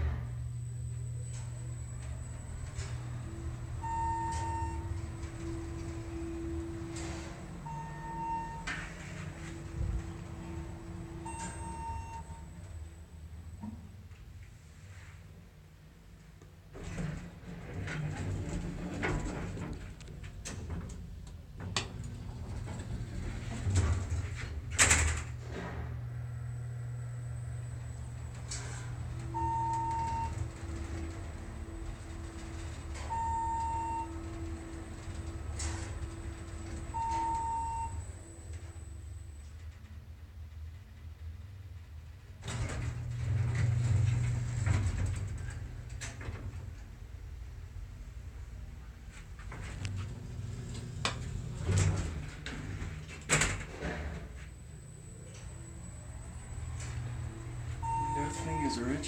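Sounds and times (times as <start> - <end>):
elevator sliding rush: 0.0 - 12.9, 16.8 - 20.0, 21.9 - 39.1, 42.4 - 48.6, 49.2 - 59.0
elevator machine humming: 0.0 - 14.2, 20.6 - 40.3, 42.4 - 59.0
elevator clicks: 1.2 - 12.5, 27.7 - 38.7.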